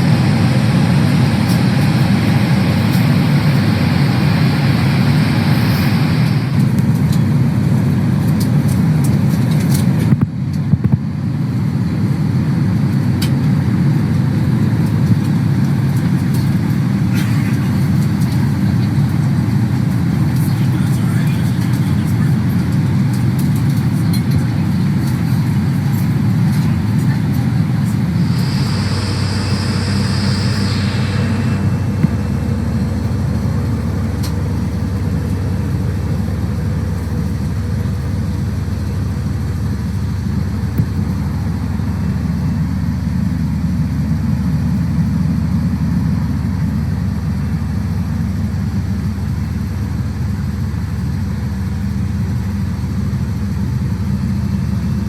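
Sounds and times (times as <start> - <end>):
airliner cabin rumble: 0.0 - 55.0
brief hiss: 28.1 - 34.8.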